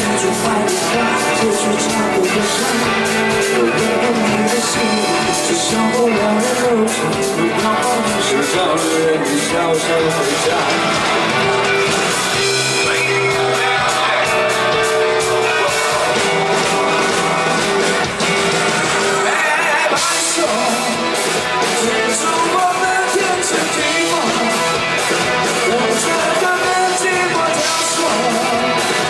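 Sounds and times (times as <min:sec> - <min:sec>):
drums: 0:00.0 - 0:29.0
guitars: 0:00.0 - 0:29.0
live rock band playing: 0:00.0 - 0:29.0.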